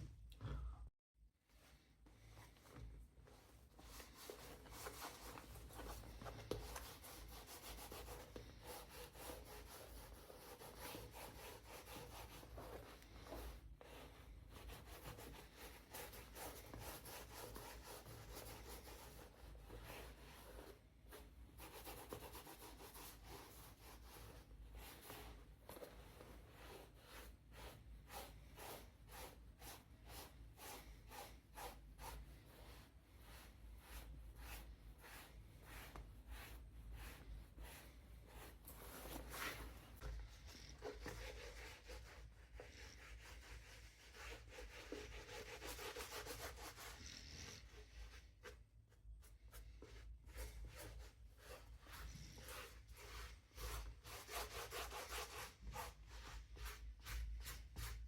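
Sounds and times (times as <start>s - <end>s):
hand rubbing leather: 32.0s - 46.9s.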